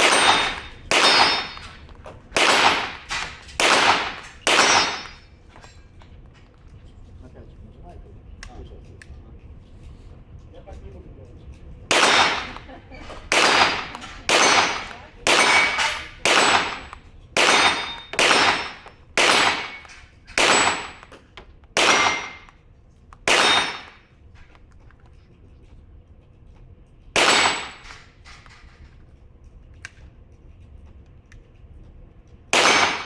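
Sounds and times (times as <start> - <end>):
pistol shots echoing: 0.0 - 5.2, 11.9 - 22.6, 23.3 - 24.0, 27.2 - 28.1, 32.5 - 33.0.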